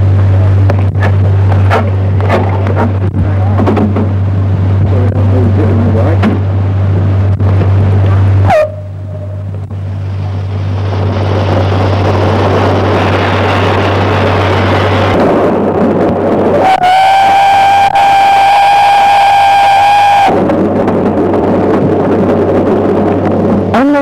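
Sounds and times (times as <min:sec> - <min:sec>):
steam whistle blast: 0:16.6 - 0:20.4.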